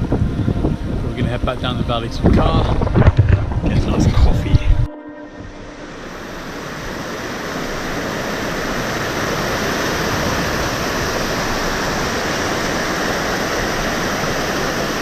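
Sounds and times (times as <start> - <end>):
rushing stream water: 5.5 - 15.0.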